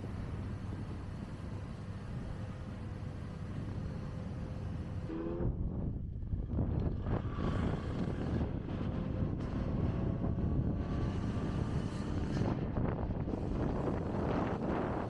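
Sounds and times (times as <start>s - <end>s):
wind buffeting microphone: 0.0s - 15.0s
motorcycle engine running: 5.2s - 15.0s.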